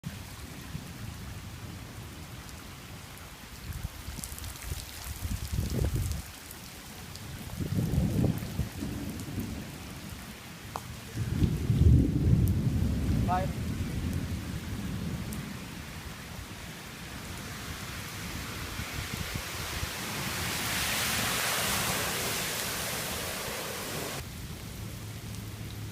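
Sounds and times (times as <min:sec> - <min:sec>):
steady rain falling: 0:00.0 - 0:25.9
thunder rumbling: 0:07.6 - 0:25.6.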